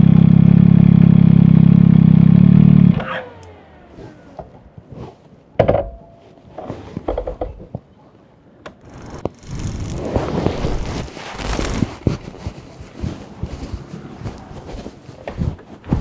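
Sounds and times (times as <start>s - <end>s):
motorcycle engine idling: 0.0s - 4.8s.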